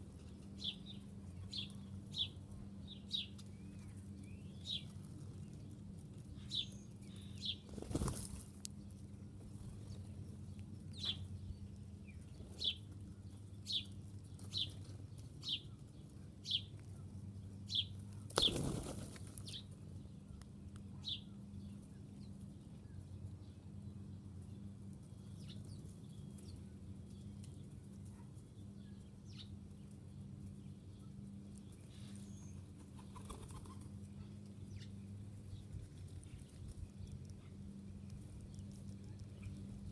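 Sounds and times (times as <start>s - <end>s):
low steady hum: 0.0s - 39.9s
songbird chirping: 0.0s - 39.9s
wings flapping: 7.6s - 8.5s, 18.3s - 19.5s, 32.9s - 33.9s.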